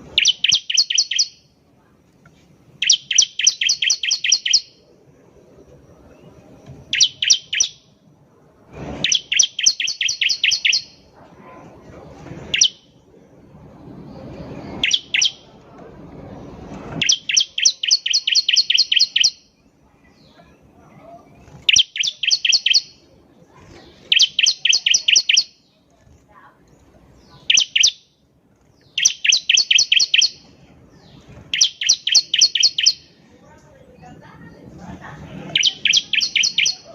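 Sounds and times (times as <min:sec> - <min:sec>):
bird chirping and trilling: 0:00.0 - 0:01.5, 0:02.8 - 0:04.9, 0:05.9 - 0:08.0, 0:09.0 - 0:11.2, 0:12.5 - 0:13.1, 0:13.8 - 0:15.5, 0:17.0 - 0:23.2, 0:23.8 - 0:25.7, 0:27.1 - 0:28.2, 0:28.8 - 0:33.2, 0:35.5 - 0:36.9.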